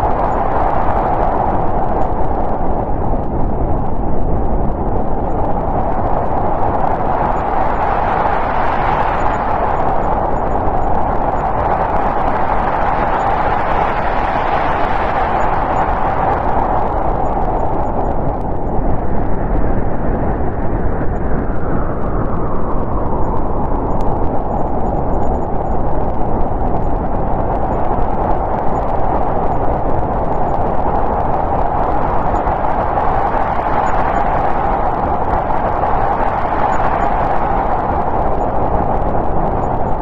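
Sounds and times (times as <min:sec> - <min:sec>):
deep rumble: 0:00.0 - 0:40.0
snowstorm wind blowing: 0:00.0 - 0:40.0
whistling wind: 0:00.0 - 0:40.0.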